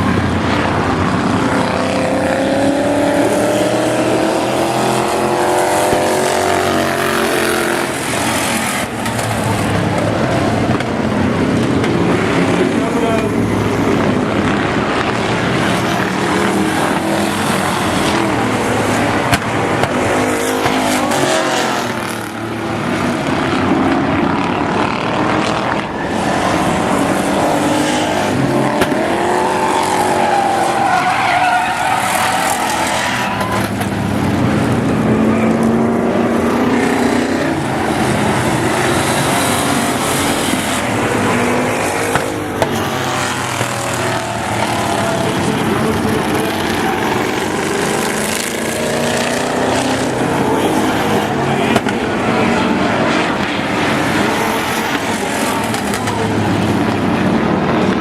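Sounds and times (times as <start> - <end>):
racing engines running hard: 0.0 - 58.0
tyre squeal: 29.4 - 33.9.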